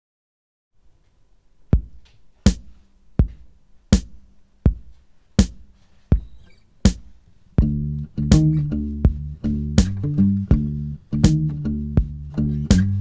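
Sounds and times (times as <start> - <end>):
kick drum and snare beat: 1.8 - 13.0
faint low hum: 6.0 - 13.0.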